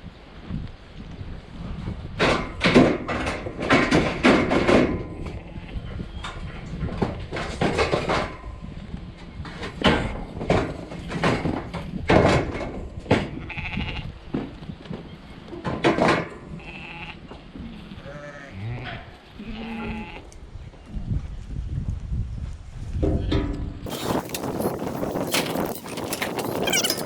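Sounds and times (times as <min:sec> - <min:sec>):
sheep and lambs bleating: 0:13.4 - 0:14.1, 0:16.6 - 0:20.4.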